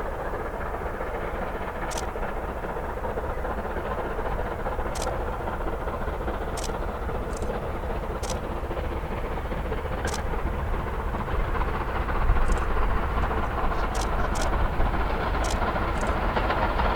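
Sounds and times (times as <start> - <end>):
steam train running: 0.0 - 16.9
sharp clicks: 1.8 - 2.2, 4.8 - 5.4, 6.4 - 8.6, 10.0 - 10.4, 12.4 - 16.2.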